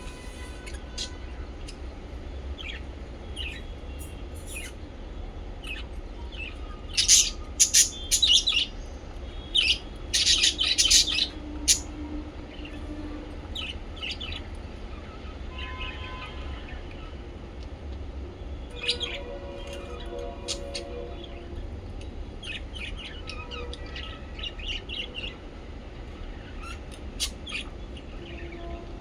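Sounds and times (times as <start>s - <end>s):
parrots chirping: 0.0s - 3.7s, 4.4s - 4.8s, 5.6s - 11.9s, 18.6s - 25.4s, 26.2s - 28.5s.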